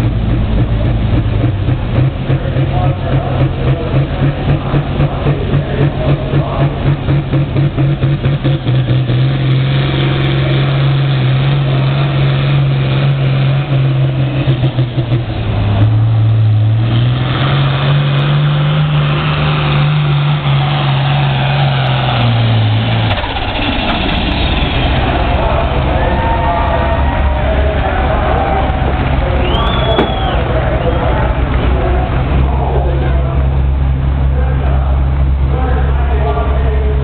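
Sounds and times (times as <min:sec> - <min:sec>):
low engine rumble: 0:00.0 - 0:37.0
tractor engine under load: 0:00.0 - 0:37.0.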